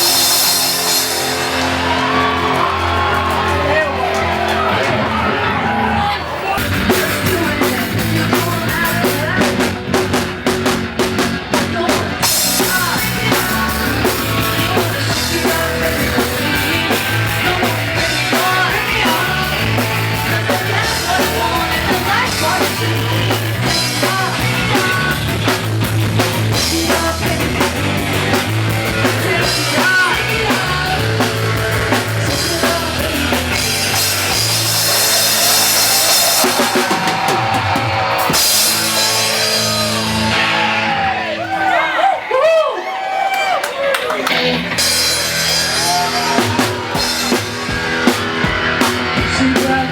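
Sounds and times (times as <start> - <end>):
drum kit beat: 0.0 - 5.4, 6.6 - 41.1, 44.3 - 49.9
rock music: 0.0 - 49.9.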